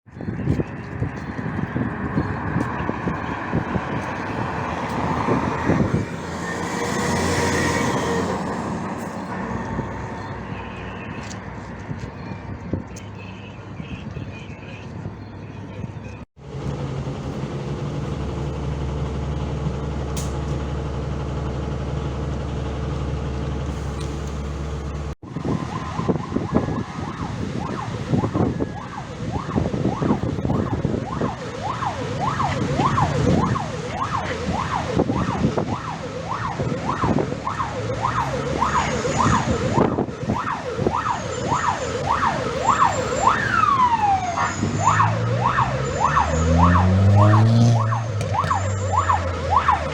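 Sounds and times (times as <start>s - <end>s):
fire engine siren yelping: 0.5s - 12.6s, 23.7s - 49.9s
vehicle engine running: 16.4s - 25.2s.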